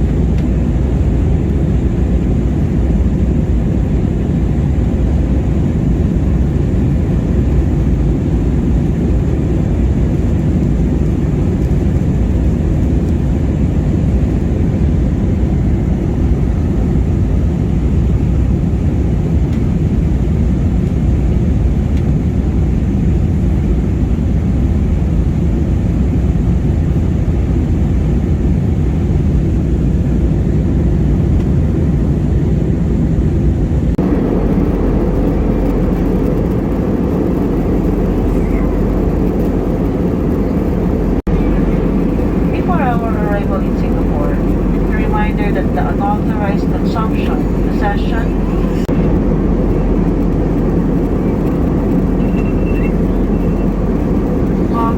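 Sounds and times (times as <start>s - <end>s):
airliner engine drone: 0.0s - 54.9s
faint steady hum: 24.9s - 54.9s
rushing air: 33.1s - 54.9s.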